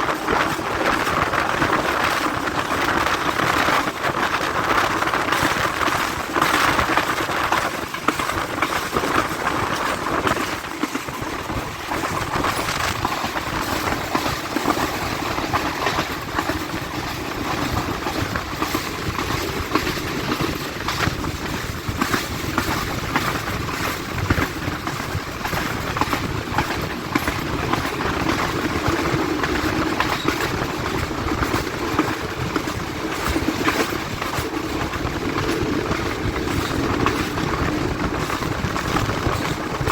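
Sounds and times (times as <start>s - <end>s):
train coach rumbling: 0.0s - 39.9s
wheels clattering on rails: 0.0s - 39.9s.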